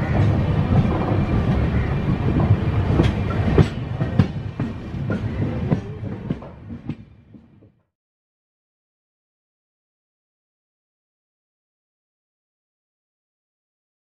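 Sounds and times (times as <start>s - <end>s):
train coach rumbling: 0.0s - 7.8s.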